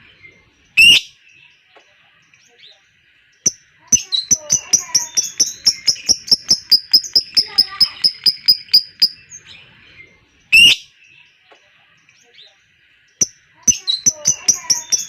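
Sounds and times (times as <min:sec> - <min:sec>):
lovebird chattering: 0:03.5 - 0:09.4, 0:13.2 - 0:15.0.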